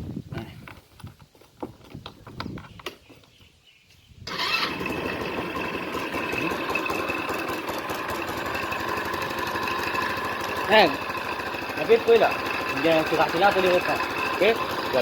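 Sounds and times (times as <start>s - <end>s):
scooter engine running: 4.3s - 15.0s.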